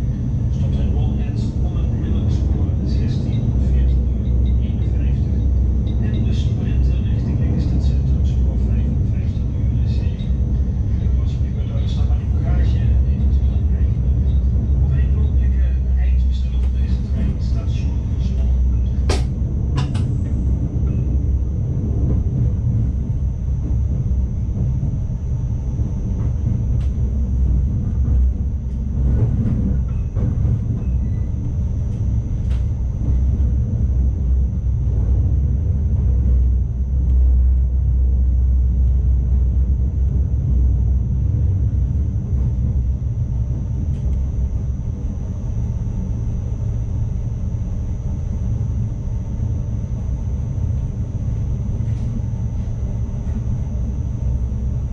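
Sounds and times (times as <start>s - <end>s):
electric train rumble: 0.0s - 54.9s.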